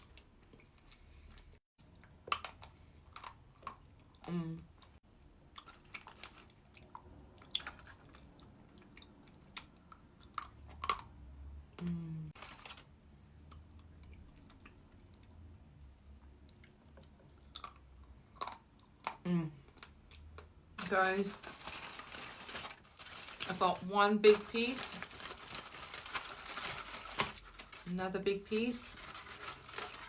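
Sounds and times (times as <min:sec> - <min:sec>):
chewing chocolate: 0:13.5 - 0:20.5.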